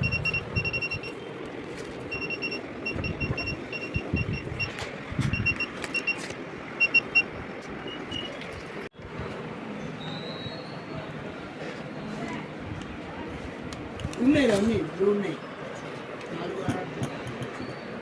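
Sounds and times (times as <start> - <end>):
rapid electronic beeping: 0.0 - 1.2, 2.1 - 6.2.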